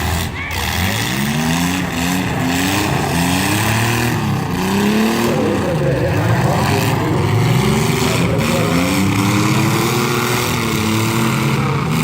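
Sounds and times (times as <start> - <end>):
car and truck engines revving: 0.0 - 12.0.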